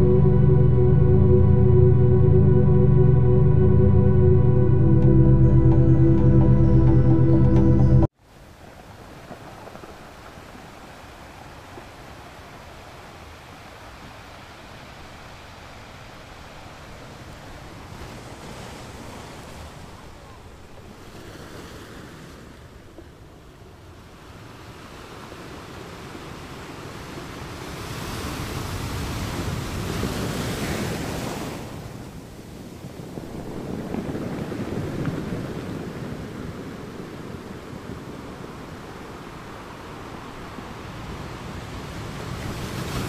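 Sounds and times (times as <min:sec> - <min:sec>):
wind buffeting microphone: 0:32.2 - 0:43.0.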